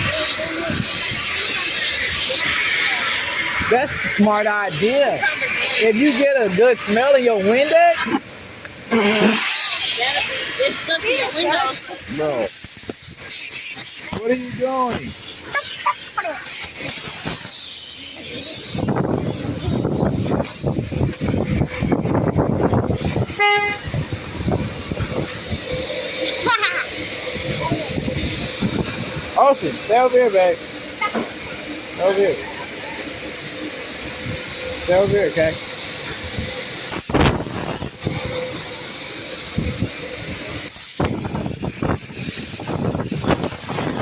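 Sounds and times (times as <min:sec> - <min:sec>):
car wash spray and clatter: 0:00.0 - 0:44.0
car horn toot: 0:23.3 - 0:24.0.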